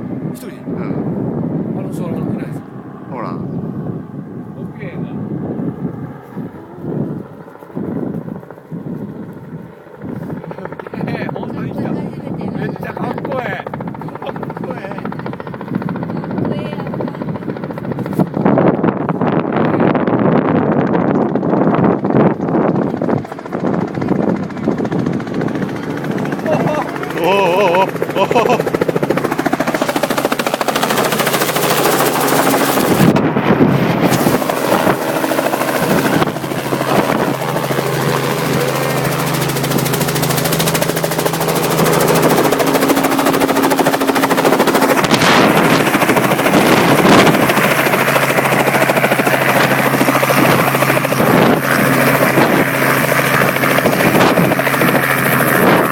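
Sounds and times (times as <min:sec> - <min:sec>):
helicopter rotor chop: 0:00.0 - 0:55.9
piston engine drone: 0:25.7 - 0:55.9
helicopter thumps: 0:41.6 - 0:48.2.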